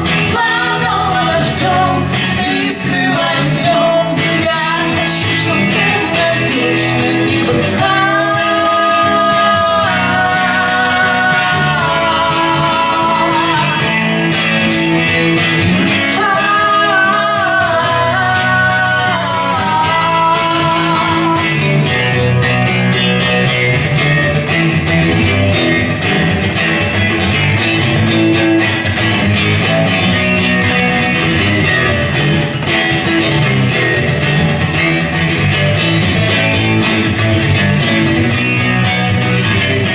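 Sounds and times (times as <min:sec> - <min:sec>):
person singing: 0:00.0 - 0:14.6, 0:15.7 - 0:22.4
guitars playing: 0:00.0 - 0:39.9.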